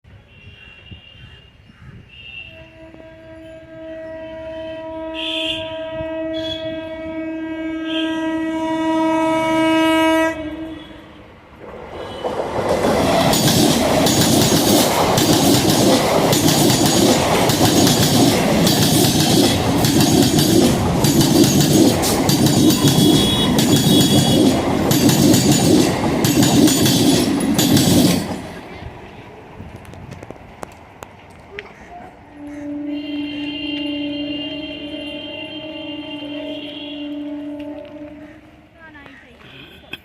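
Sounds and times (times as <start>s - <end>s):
train horn blast: 2.1s - 11.3s, 11.9s - 12.4s, 22.6s - 24.7s, 32.3s - 38.8s
train wheels clattering over rail joints: 11.6s - 28.7s.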